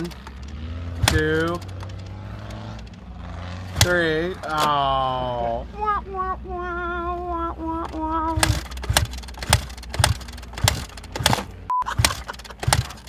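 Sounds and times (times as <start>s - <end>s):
dirt bike kick start thumps: 0.0s - 3.0s, 3.7s - 4.8s, 7.8s - 13.0s
wavering vocal wail: 4.7s - 8.4s
short steady beep: 11.7s - 12.0s.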